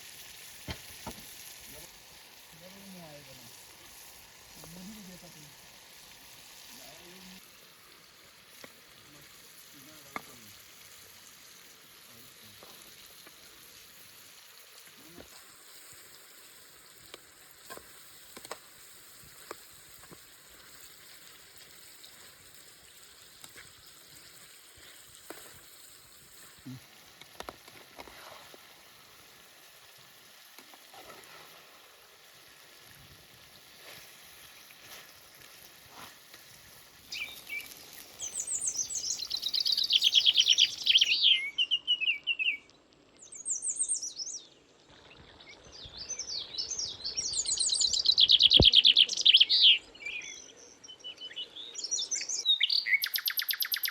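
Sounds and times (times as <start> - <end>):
food sizzling: 0.0 - 41.4
sharp clicks and pops: 17.0 - 18.8, 27.1 - 28.2.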